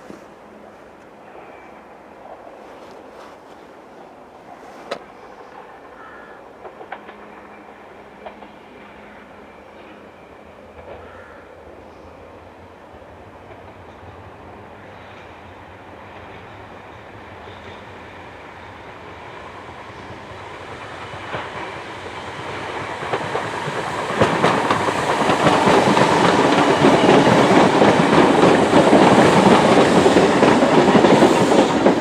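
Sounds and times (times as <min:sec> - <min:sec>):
electric train approaching: 0:00.0 - 0:32.0
train wheels clicking: 0:04.5 - 0:08.8, 0:19.3 - 0:32.0.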